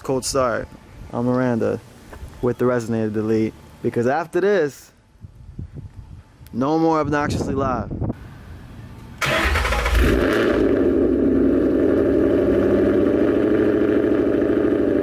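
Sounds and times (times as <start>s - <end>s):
car engine starting and idling: 9.1s - 15.0s.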